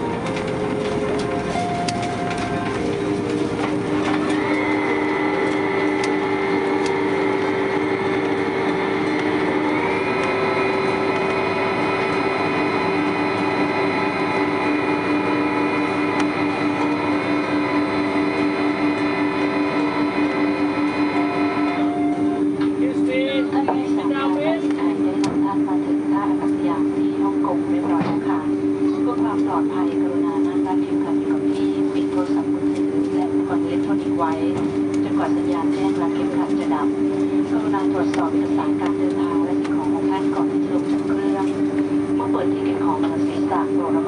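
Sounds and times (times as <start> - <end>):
wheels rumbling: 0.0 - 30.8
higher whine stepping up: 0.0 - 44.0
jet engines whining: 0.0 - 44.0.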